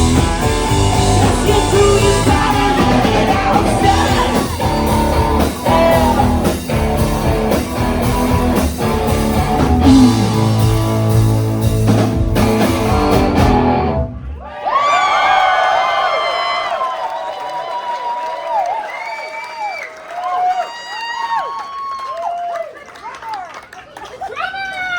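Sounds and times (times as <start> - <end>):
audience cheering: 0.0 - 10.8, 13.0 - 24.9
live rock band playing: 0.0 - 14.2.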